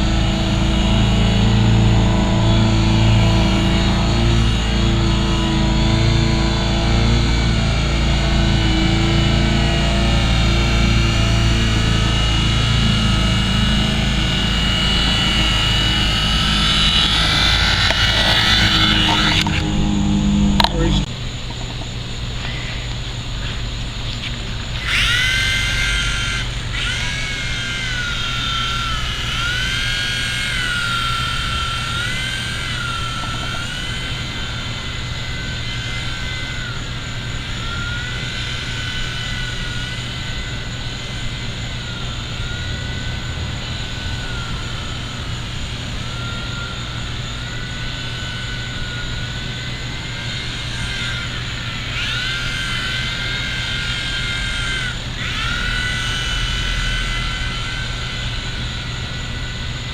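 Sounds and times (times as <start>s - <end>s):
toy helicopter motors whining: 0.0s - 59.9s.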